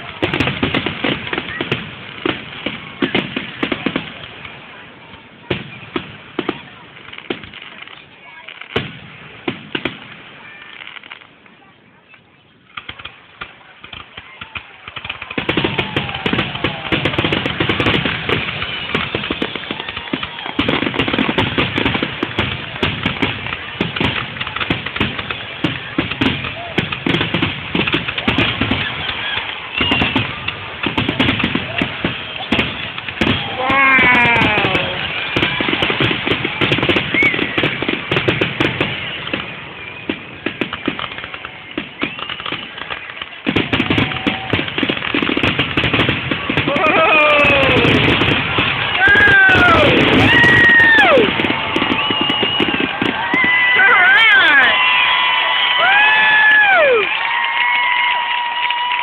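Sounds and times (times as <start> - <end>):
fireworks bursting and crackling: 0.0 - 59.0
faint falling firework whistle: 28.4 - 30.5, 31.1 - 37.9, 38.6 - 44.7, 46.7 - 59.0.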